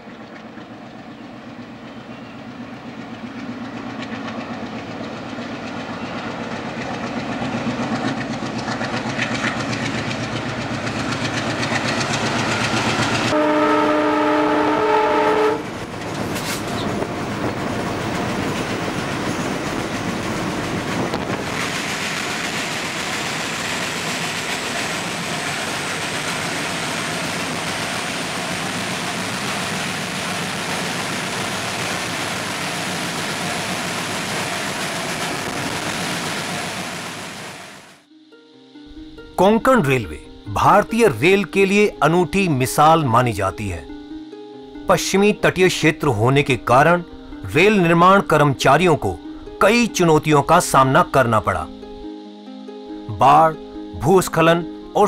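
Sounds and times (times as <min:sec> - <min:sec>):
locomotive engine noise: 0:00.0 - 0:38.1
train running on rails: 0:00.0 - 0:38.2, 0:38.8 - 0:55.0
train horn chord: 0:13.1 - 0:15.9.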